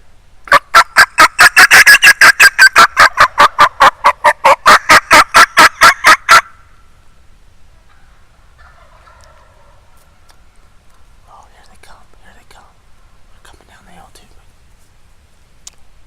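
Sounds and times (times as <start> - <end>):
loud gobble-like rattle: 0.5 - 6.6, 7.9 - 10.4.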